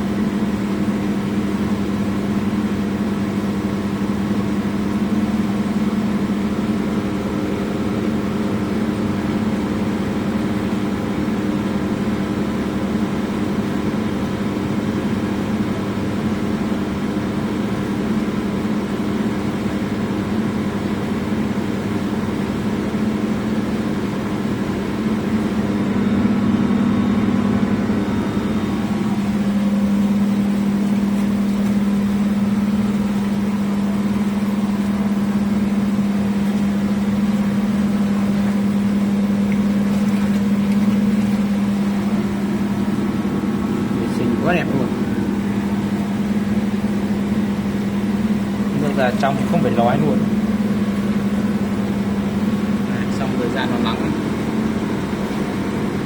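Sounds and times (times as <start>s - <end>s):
machinery humming: 0.0s - 56.0s.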